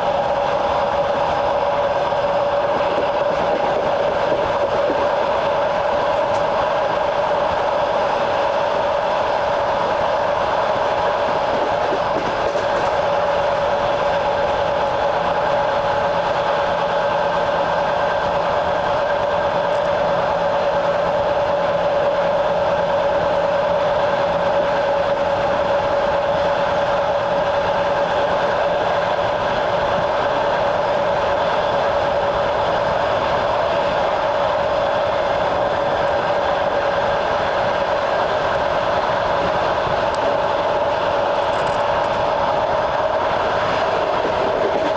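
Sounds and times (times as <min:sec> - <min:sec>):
train wheels rolling on rails: 0:00.0 - 0:44.9.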